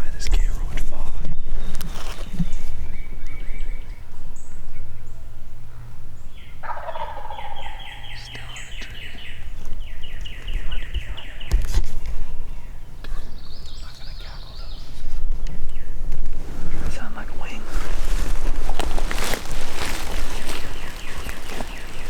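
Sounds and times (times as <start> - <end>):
turkey gobbling: 3.8 - 11.6, 16.7 - 22.0.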